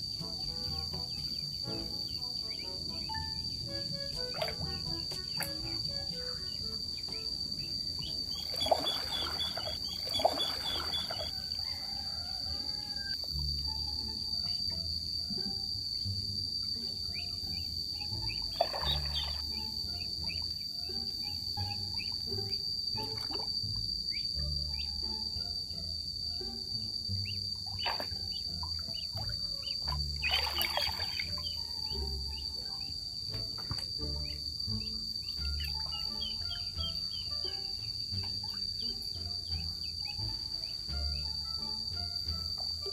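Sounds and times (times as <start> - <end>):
insects droning: 0.0 - 42.9
monkey splashing in water: 8.3 - 11.6, 18.4 - 19.4, 29.4 - 31.6.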